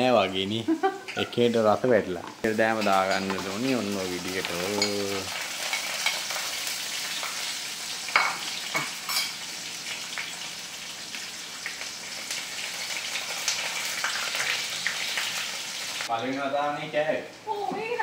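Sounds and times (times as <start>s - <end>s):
food sizzling in oil: 0.0s - 16.2s.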